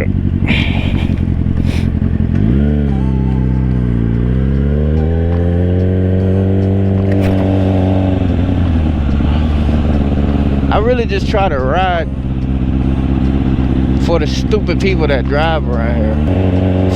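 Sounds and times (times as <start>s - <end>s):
motorcycle engine under throttle: 3.6s - 16.9s.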